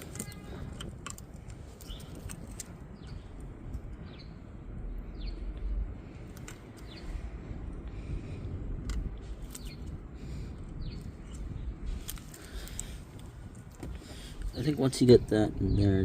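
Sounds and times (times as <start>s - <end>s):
metal brake parts clicking: 0.0s - 3.2s
low rumble: 0.0s - 16.0s
bird chirping: 1.6s - 5.7s, 6.6s - 7.4s, 9.4s - 12.9s.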